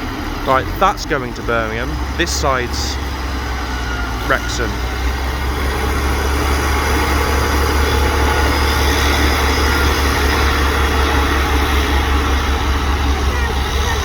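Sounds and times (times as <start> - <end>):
diesel train engine idling: 0.0 - 14.0.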